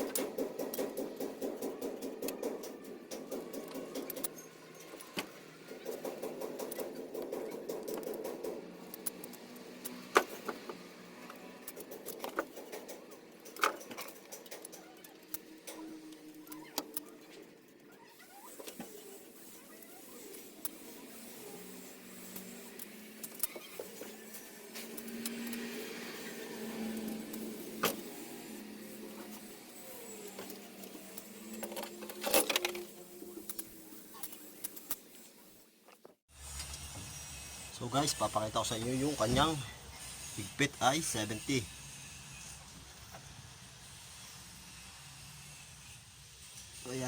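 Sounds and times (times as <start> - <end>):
metallic clicks of hand tools: 0.0 - 17.1
ratchet clicks: 0.0 - 17.8, 18.4 - 35.2.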